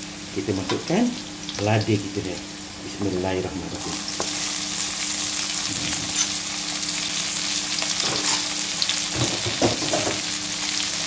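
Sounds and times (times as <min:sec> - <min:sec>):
food sizzling in hot oil: 0:00.0 - 0:11.0
metal spatula scraping wok: 0:08.0 - 0:08.5.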